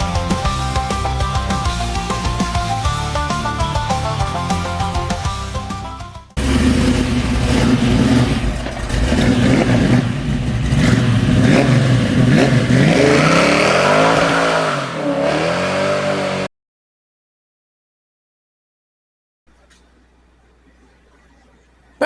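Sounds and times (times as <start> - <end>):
car engine revving: 0.0 - 16.5.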